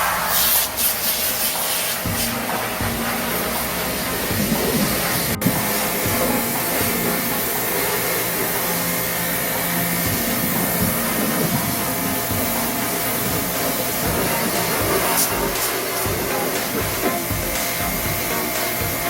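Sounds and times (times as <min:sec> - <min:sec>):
pressure washer jet hissing: 0:00.0 - 0:19.0
washer pump humming: 0:00.0 - 0:19.0.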